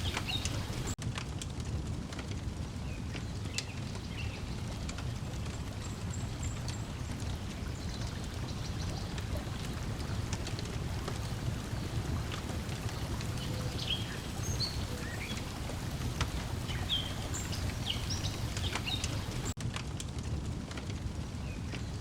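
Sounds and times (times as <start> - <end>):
water lapping at shore: 0.0 - 1.0, 3.8 - 19.6
wood fire crackling and popping: 0.0 - 22.0.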